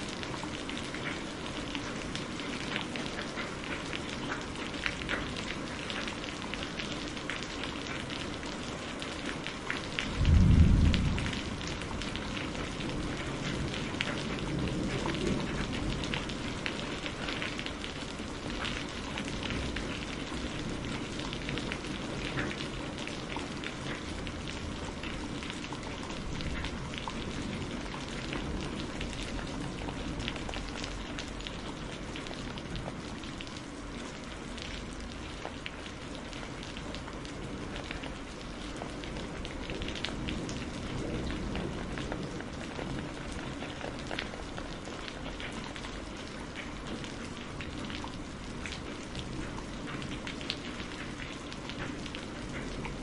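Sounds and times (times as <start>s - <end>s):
rain falling: 0.0s - 53.0s
distant thunder rumble: 10.1s - 15.6s
thunder clap: 10.2s - 12.8s.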